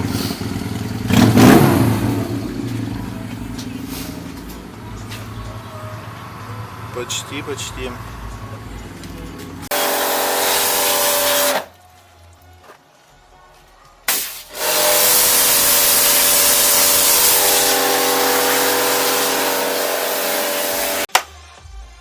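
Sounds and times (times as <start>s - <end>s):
electric power sander: 9.7s - 11.6s, 14.5s - 21.1s.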